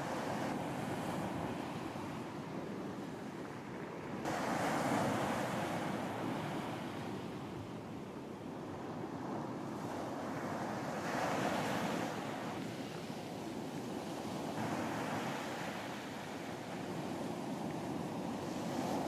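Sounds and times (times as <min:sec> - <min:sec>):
sea surf washing onto beach: 0:00.0 - 0:08.2
wind: 0:00.0 - 0:19.0.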